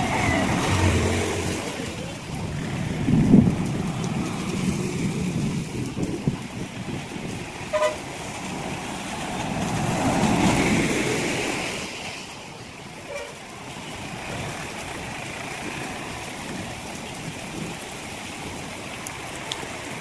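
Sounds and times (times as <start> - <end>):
road traffic passing: 0.0 - 20.0
vehicle horn toot: 7.7 - 8.0, 13.1 - 13.4.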